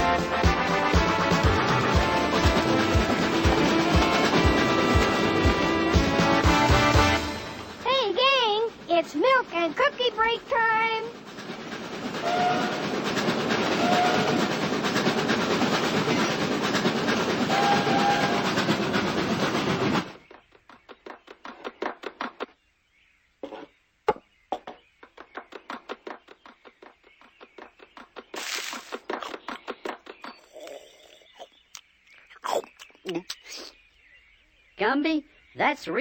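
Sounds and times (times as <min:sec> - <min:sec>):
steam train chuffing: 0:00.0 - 0:20.2
wheels clicking on track: 0:00.0 - 0:22.5, 0:25.0 - 0:30.7
train whistle toots: 0:12.2 - 0:13.0, 0:13.6 - 0:14.5, 0:17.4 - 0:18.6.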